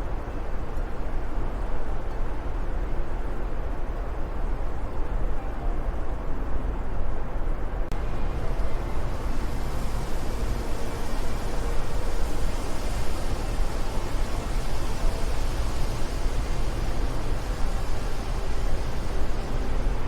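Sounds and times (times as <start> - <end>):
wind blowing: 6.8 - 20.0.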